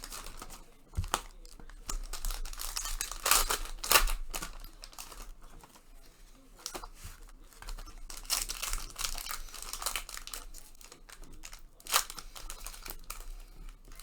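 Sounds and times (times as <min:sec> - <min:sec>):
foil card packs crinkling and tearing: 0:00.0 - 0:14.0.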